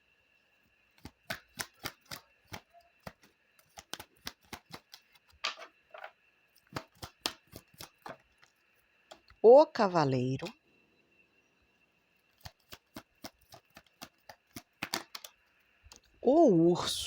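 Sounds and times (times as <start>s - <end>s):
cards clicking and snapping: 1.0s - 5.5s, 6.6s - 8.4s, 12.3s - 16.1s.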